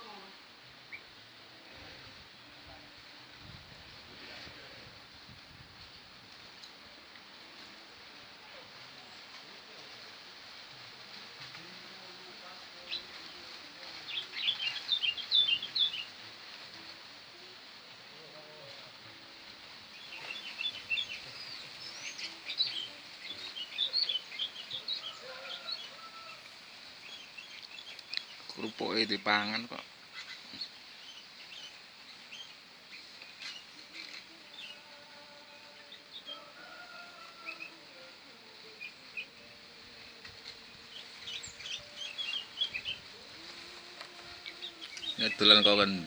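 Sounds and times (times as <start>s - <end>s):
small birds chirping: 11.6s - 17.7s, 19.3s - 46.0s.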